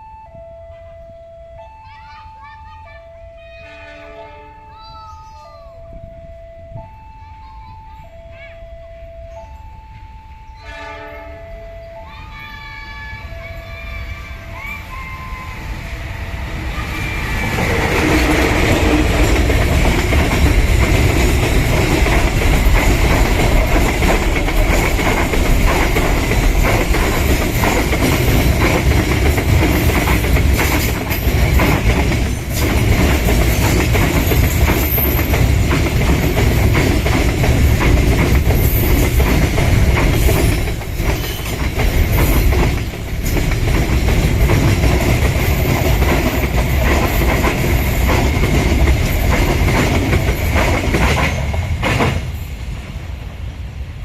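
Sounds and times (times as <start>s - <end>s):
train wheels clattering over joints: 16.8s - 52.4s
high wheel squeal: 40.2s - 42.5s.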